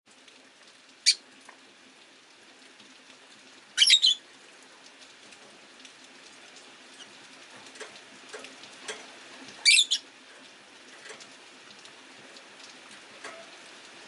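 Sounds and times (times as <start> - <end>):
faint rain hiss: 0.1 - 14.0
lovebirds chirping: 3.8 - 4.2, 9.6 - 10.0.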